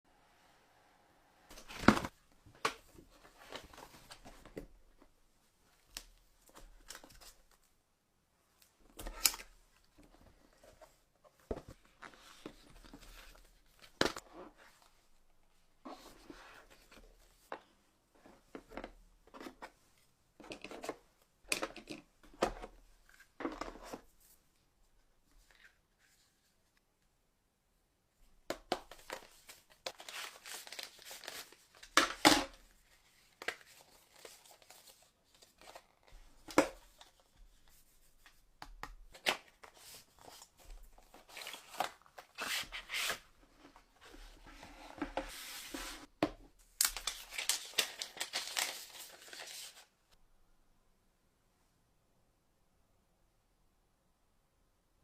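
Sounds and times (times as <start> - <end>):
card and plastic rustling: 28.7 - 37.8, 39.0 - 46.1, 46.8 - 49.9.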